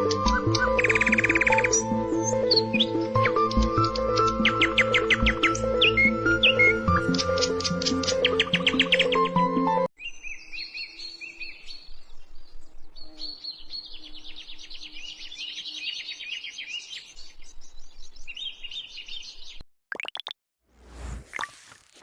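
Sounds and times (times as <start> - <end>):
small birds chirping: 0.0 - 9.3, 10.0 - 19.6
music: 0.0 - 9.9.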